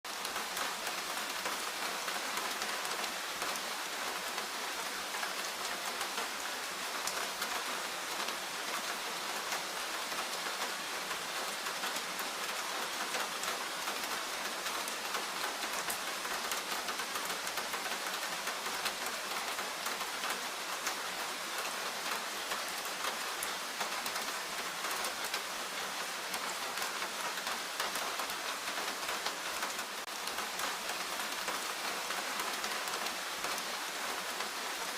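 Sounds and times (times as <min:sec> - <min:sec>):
rain falling in forest: 0:00.0 - 0:34.9.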